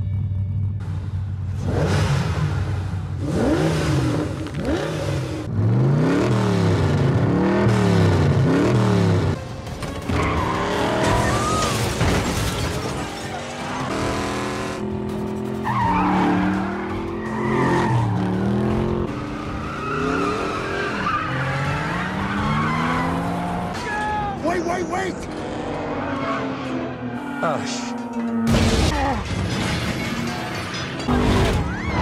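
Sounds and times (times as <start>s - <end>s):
car engines revving hard: 1.5s - 9.4s, 13.5s - 28.8s.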